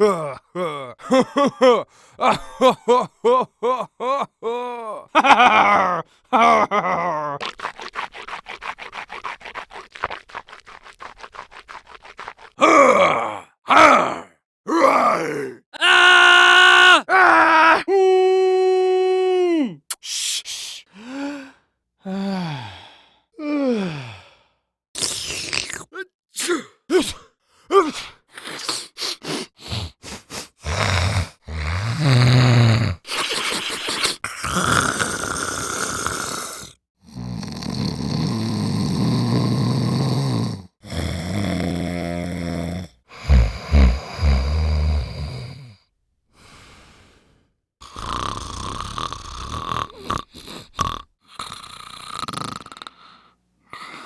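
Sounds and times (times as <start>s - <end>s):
breath and mouth sounds: 7.4s - 14.1s, 25.0s - 45.4s, 47.8s - 54.0s
snore-like breathing: 29.4s - 45.8s, 46.4s - 54.0s.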